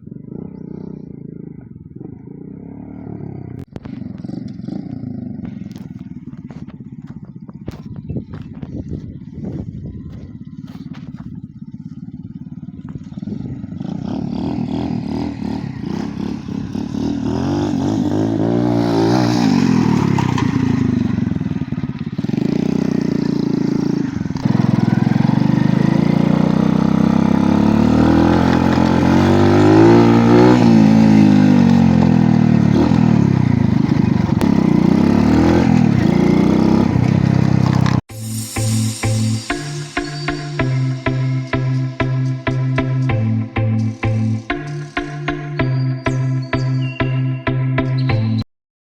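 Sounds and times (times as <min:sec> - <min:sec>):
motorcycle engine revving: 0:00.0 - 0:48.5.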